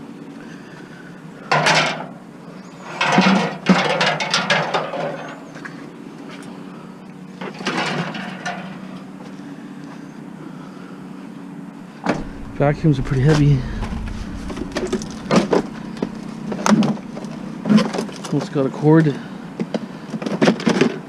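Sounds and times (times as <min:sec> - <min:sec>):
junk scraping: 0:11.8 - 0:20.0
steady low hum: 0:11.8 - 0:20.2
sharp knocks: 0:12.0 - 0:18.3.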